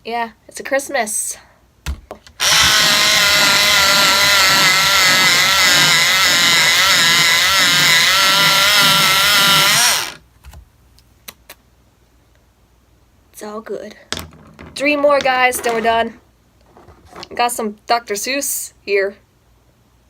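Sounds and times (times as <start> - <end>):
electric pencil sharpener grinding: 2.4 - 10.2.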